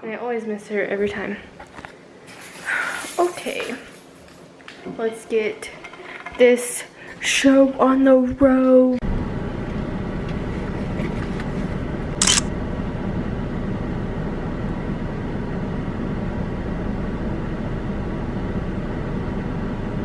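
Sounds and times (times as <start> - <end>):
car road and engine noise: 9.0 - 20.0.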